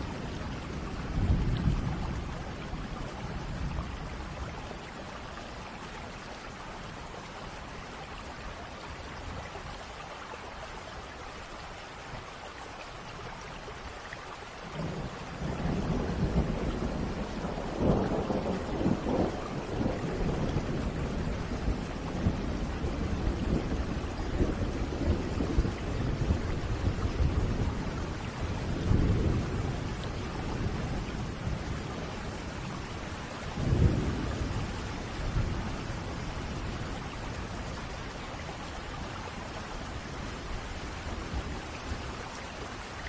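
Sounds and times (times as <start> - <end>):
thunder rumbling: 0.0 - 4.4, 14.8 - 38.8
steady rain: 0.0 - 43.0.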